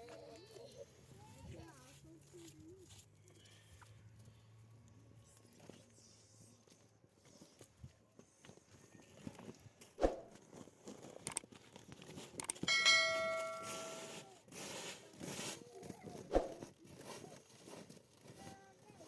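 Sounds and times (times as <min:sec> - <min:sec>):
bell-like metallic ring: 0:12.6 - 0:14.3.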